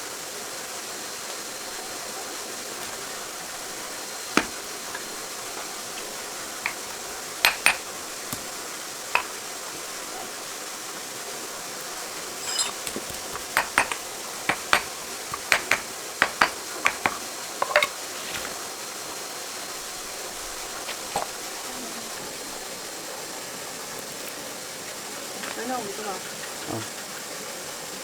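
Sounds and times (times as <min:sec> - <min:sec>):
steady hiss: 0:00.0 - 0:28.0
metal tools clinking: 0:12.3 - 0:18.5.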